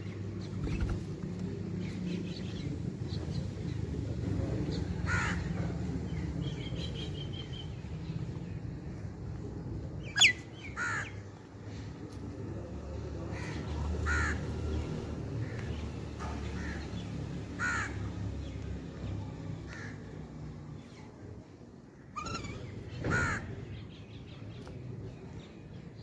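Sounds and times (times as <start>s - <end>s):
harsh caw-like bird calls: 5.0s - 5.8s, 10.1s - 11.4s, 13.3s - 18.4s, 19.7s - 20.5s, 21.9s - 23.8s.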